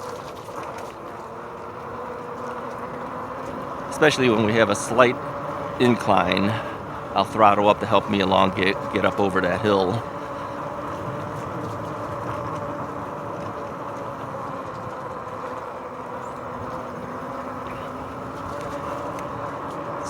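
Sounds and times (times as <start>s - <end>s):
bike tyres rolling on trail: 0.0s - 20.0s
faint motor hum: 0.0s - 20.0s.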